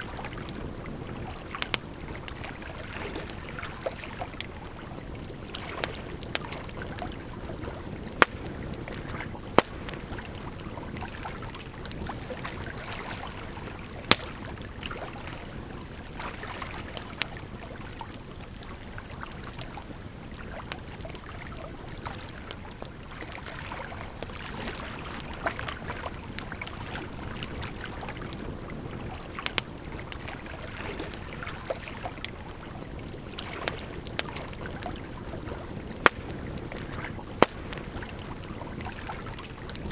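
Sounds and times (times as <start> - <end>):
wood fire crackling: 0.0 - 23.0, 24.0 - 39.9
flowing water rushing: 6.9 - 16.9.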